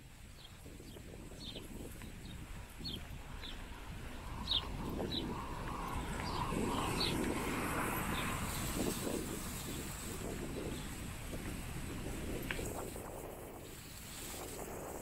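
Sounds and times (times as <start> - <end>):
outdoor background noise: 0.0 - 15.0
small birds chirping: 0.3 - 11.0.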